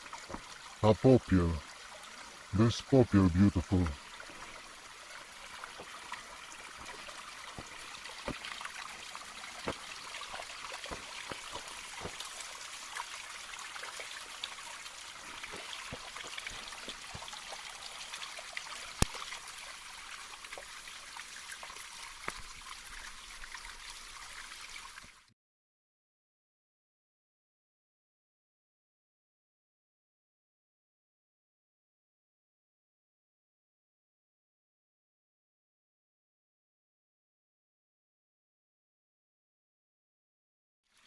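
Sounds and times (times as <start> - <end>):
stream trickling over stones: 0.0 - 25.3.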